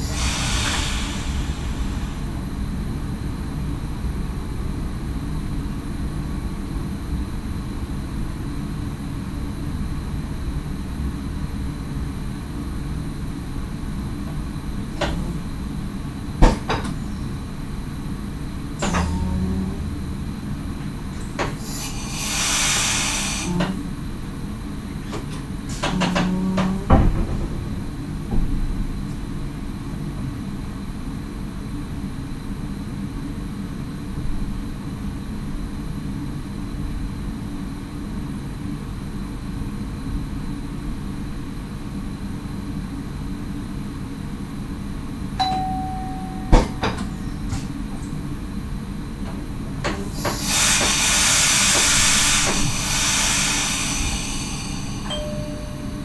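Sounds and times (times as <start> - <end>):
hiss: 0.0 - 2.7, 21.4 - 23.8, 49.9 - 55.2
train rumble: 0.0 - 31.7, 43.6 - 56.0.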